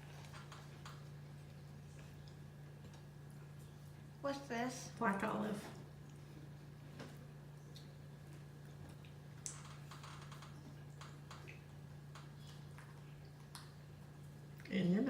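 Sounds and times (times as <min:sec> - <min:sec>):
steady low hum: 0:00.0 - 0:15.0
small clicks and ticks: 0:08.9 - 0:13.8.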